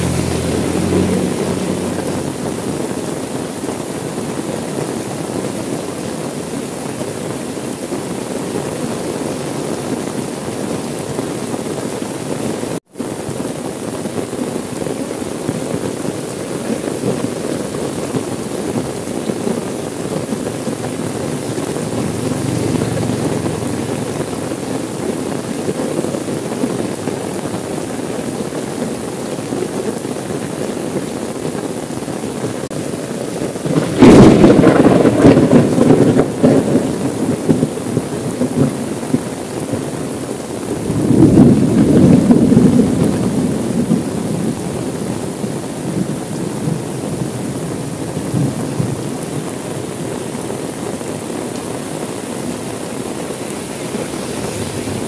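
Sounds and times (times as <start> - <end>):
rain on a car window: 0.0 - 55.0.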